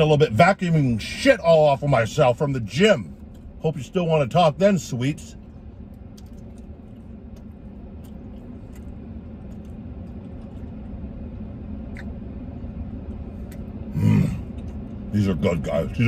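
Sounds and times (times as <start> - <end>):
steady low hum: 0.0 - 16.0
man chewing: 5.4 - 15.1
soft mouth clicks: 11.9 - 12.2.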